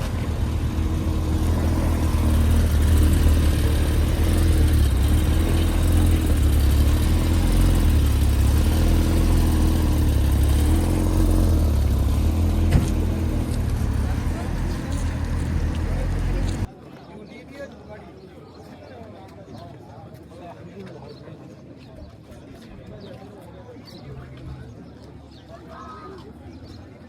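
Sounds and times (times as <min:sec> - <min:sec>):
car engine rumbling: 0:00.0 - 0:16.7.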